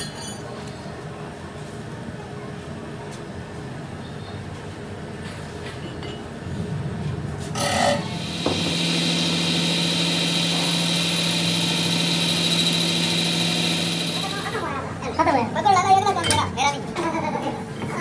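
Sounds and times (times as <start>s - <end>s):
power tool humming and whining: 7.9s - 15.0s.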